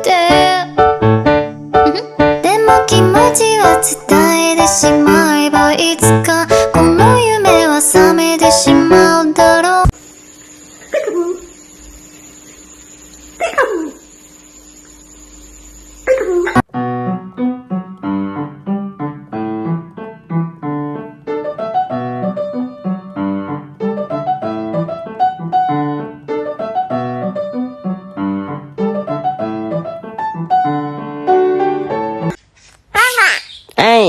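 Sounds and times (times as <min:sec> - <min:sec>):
solo piano music: 0:00.0 - 0:09.9, 0:16.6 - 0:32.4.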